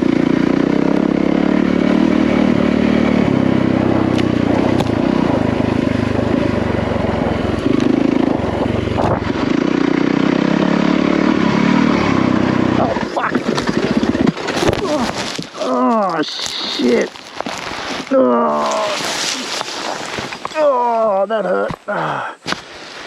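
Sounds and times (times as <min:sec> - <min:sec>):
dirt bike engine revving: 0:00.0 - 0:15.7
bike knocking over rough ground: 0:04.1 - 0:05.3, 0:13.0 - 0:18.1.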